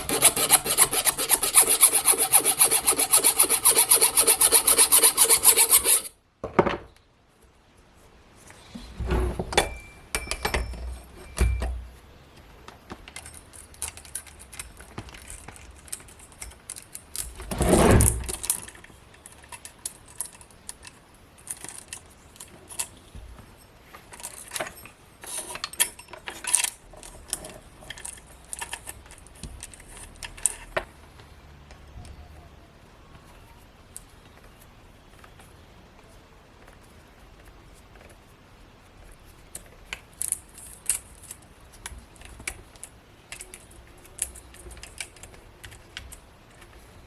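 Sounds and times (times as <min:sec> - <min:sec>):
rustling handling noise: 0:33.0 - 0:47.0.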